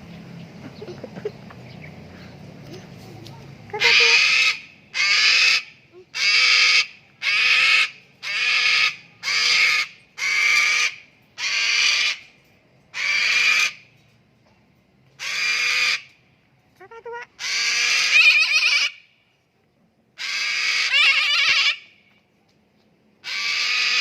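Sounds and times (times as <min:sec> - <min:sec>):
cockatoo screeching: 0:03.8 - 0:12.2, 0:13.0 - 0:13.8, 0:15.2 - 0:16.1, 0:17.3 - 0:19.0, 0:20.2 - 0:22.0, 0:23.2 - 0:24.0.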